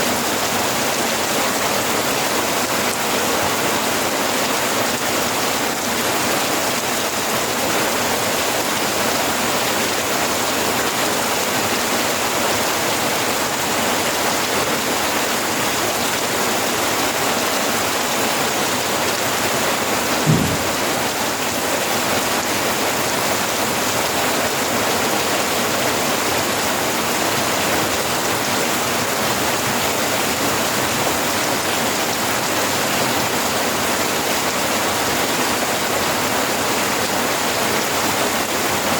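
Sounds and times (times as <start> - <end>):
rain falling: 0.1 - 38.9
low thump: 20.2 - 21.1.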